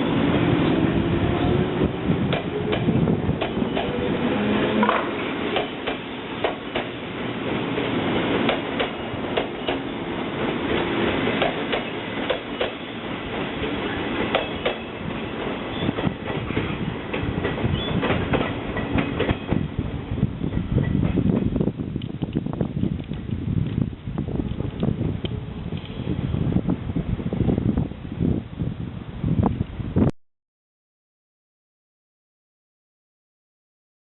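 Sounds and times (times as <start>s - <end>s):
train rumbling past: 0.0s - 29.9s
wheels clicking over rail joints: 4.8s - 19.6s.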